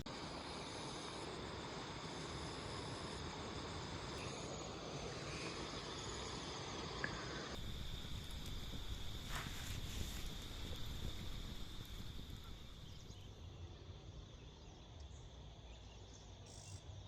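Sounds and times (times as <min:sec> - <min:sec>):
background hiss: 0:00.0 - 0:17.0
crickets trilling: 0:00.1 - 0:17.0.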